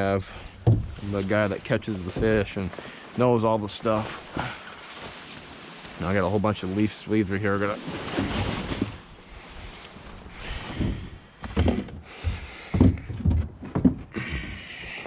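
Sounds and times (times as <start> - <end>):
rustling of leaves and debris: 0.0 - 13.1
knocks and thumps in a boat: 0.1 - 2.8, 10.4 - 15.0.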